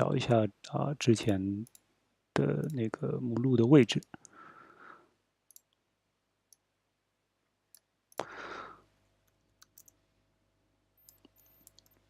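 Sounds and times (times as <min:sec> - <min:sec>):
computer mouse clicks: 0:05.5 - 0:05.8, 0:09.2 - 0:10.0, 0:11.0 - 0:12.0
breathy noise burst: 0:08.2 - 0:08.9.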